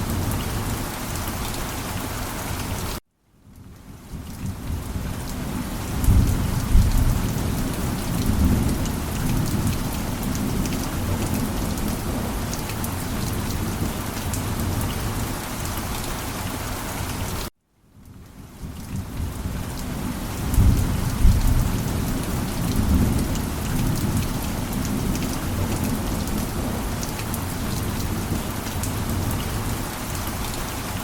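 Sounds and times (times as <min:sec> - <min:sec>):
steady rain: 0:00.0 - 0:31.0
low rumble of thunder: 0:03.5 - 0:15.3, 0:18.0 - 0:30.6
raindrops ticking close by: 0:03.5 - 0:31.0.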